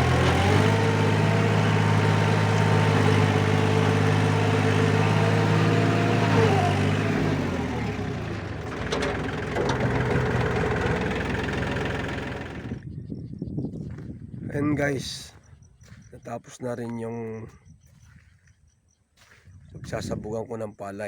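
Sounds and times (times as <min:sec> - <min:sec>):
tractor diesel engine idling: 0:00.0 - 0:12.8.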